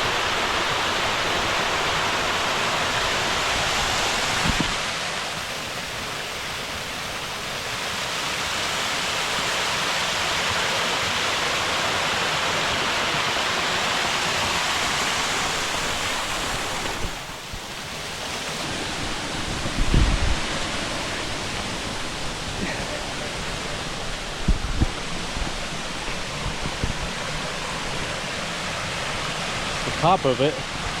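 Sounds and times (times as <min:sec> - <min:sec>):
waterfall rushing: 0:00.0 - 0:31.0
wind buffeting microphone: 0:03.0 - 0:04.8, 0:15.4 - 0:29.2.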